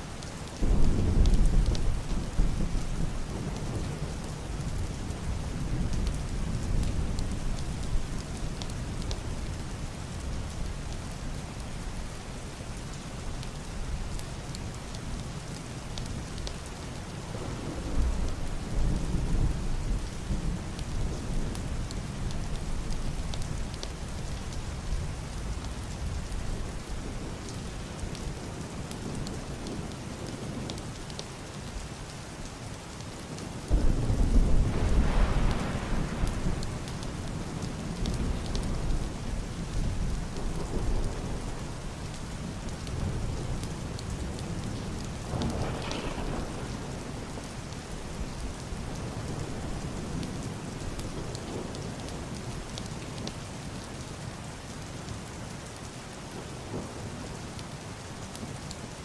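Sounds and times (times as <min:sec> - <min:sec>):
heavy rain on wooden roof: 0:00.0 - 0:59.0
rain on glass window: 0:00.1 - 0:59.0
muffled thunder rolling: 0:33.6 - 0:41.9, 0:42.9 - 0:47.8.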